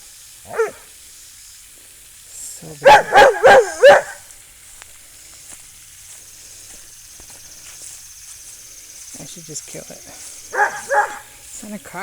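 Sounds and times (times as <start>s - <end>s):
faint high hiss: 0.0s - 12.0s
dog barking: 0.5s - 0.9s, 2.8s - 4.3s, 10.5s - 11.3s.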